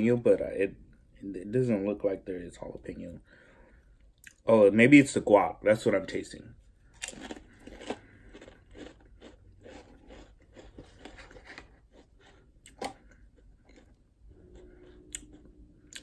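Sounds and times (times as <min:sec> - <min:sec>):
chewing crunchy crisp: 0:06.8 - 0:16.0.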